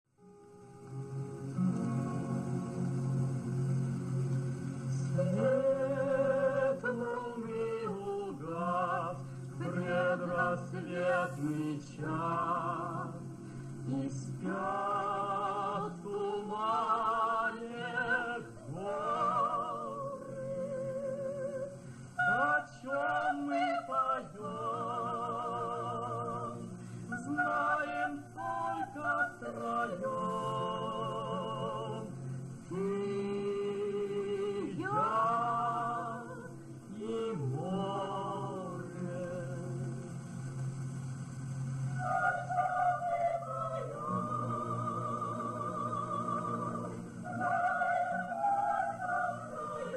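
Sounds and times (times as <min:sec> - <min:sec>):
sustained instrumental accompaniment: 0:00.2 - 0:22.6
person singing with vibrato: 0:04.8 - 0:40.0, 0:42.0 - 0:49.9.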